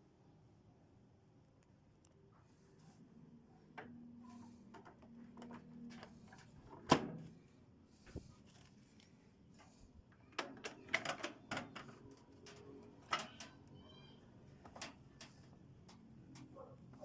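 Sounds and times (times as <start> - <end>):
tools and metal parts clicking: 10.4 - 13.7, 14.6 - 16.6.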